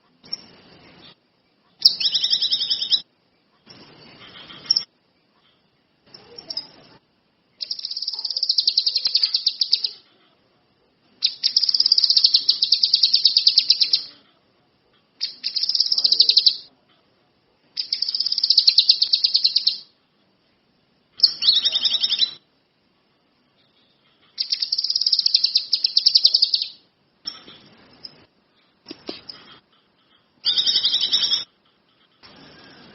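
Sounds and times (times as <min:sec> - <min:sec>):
songbird high trills: 0:24.4 - 0:26.8.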